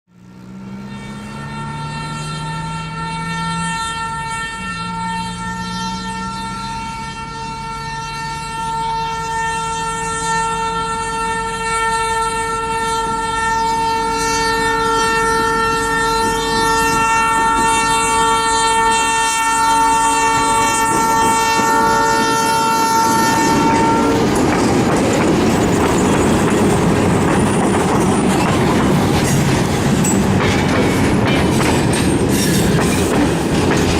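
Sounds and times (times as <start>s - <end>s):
diesel locomotives: 0.1s - 33.9s
freight train rolling on rails: 0.1s - 33.9s
train horn: 0.1s - 33.9s.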